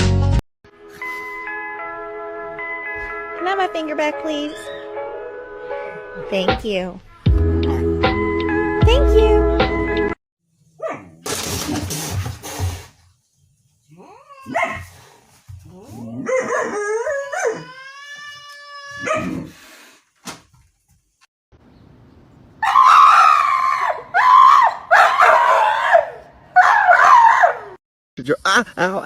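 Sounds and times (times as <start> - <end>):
dog howling and whining: 15.7 - 19.5, 22.6 - 27.8.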